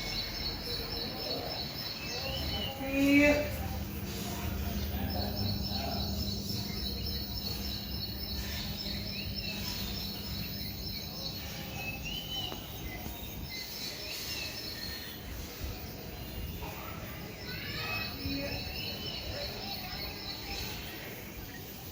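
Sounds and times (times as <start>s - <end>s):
bird chirps: 0.0s - 15.6s
insects trilling: 0.0s - 21.9s
constant low rumble: 3.4s - 13.5s.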